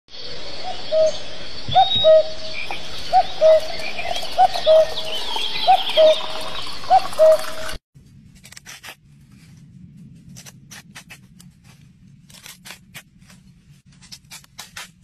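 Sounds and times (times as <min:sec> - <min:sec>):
small birds chirping: 0:00.1 - 0:07.7.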